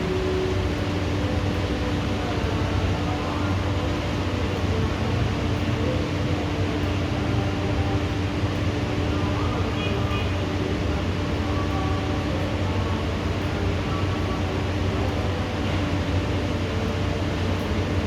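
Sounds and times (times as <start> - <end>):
low hum: 0.0 - 9.7
steady rain hiss: 0.0 - 18.0.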